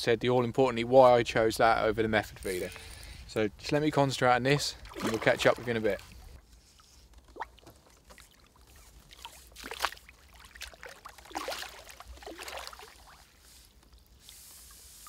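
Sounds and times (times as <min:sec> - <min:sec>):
water sloshing: 0:04.5 - 0:13.5
fish splashing at surface: 0:04.8 - 0:06.2, 0:09.0 - 0:13.4.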